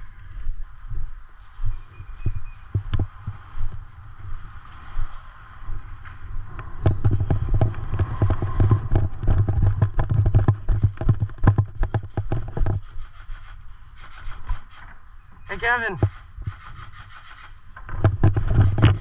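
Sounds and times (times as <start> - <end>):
running footsteps: 0.0 - 13.0.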